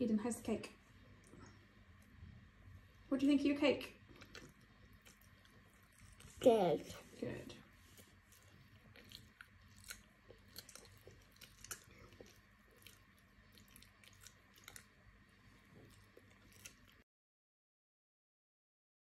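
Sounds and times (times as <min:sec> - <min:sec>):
child chewing cake: 0:00.9 - 0:03.1, 0:03.9 - 0:17.0.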